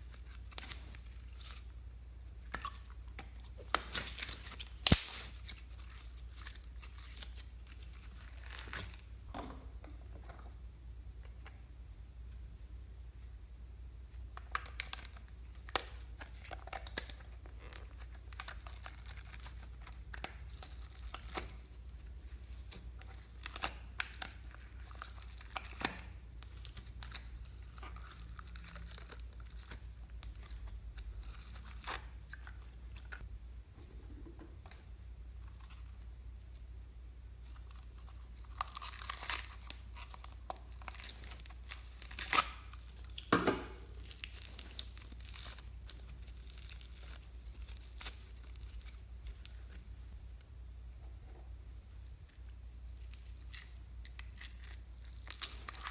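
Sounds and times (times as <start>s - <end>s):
slime squeezed with sticky crackles: 2.4s - 9.0s, 38.0s - 49.8s.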